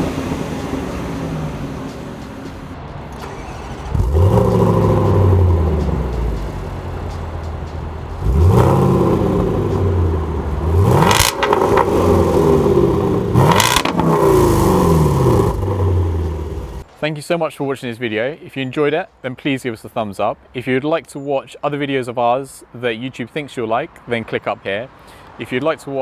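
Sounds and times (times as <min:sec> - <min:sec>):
engine revving: 0:00.0 - 0:16.8.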